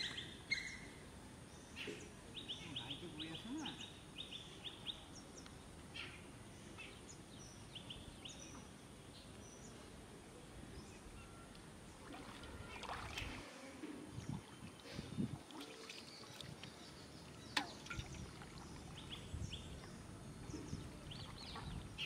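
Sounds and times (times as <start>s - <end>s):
small birds chirping: 0.0s - 9.9s, 14.1s - 22.0s
faint outdoor background: 0.0s - 22.0s.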